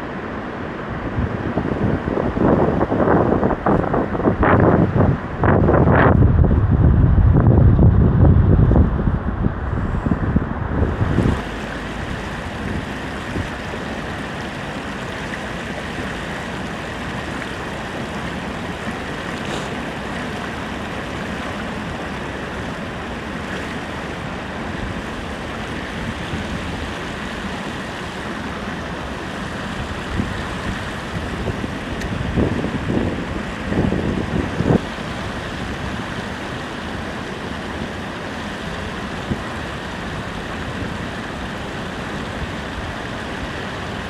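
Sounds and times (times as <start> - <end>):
rushing outdoor noise: 0.0 - 44.0
wind buffeting microphone: 0.9 - 19.4, 29.5 - 36.3.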